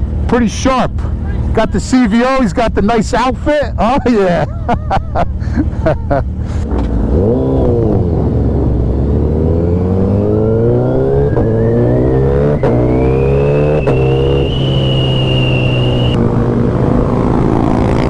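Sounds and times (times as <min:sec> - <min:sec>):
motorcycle engine accelerating: 0:05.8 - 0:18.0
thin rising whine: 0:09.5 - 0:16.2.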